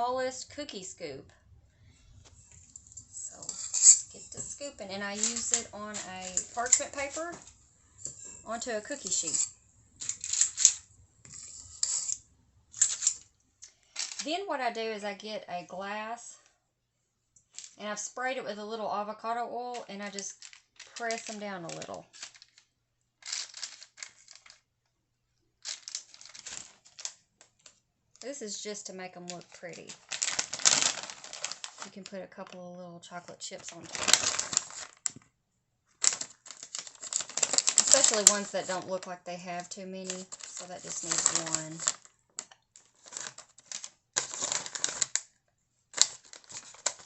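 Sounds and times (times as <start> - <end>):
parchment paper crinkling: 2.0 - 12.2, 19.7 - 24.6, 25.6 - 28.5, 29.1 - 32.2, 33.5 - 35.2, 36.0 - 45.3, 45.9 - 47.0.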